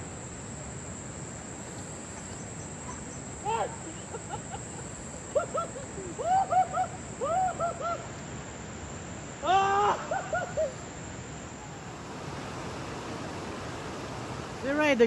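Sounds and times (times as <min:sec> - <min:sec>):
hiss of water or rain: 0:00.0 - 0:15.0.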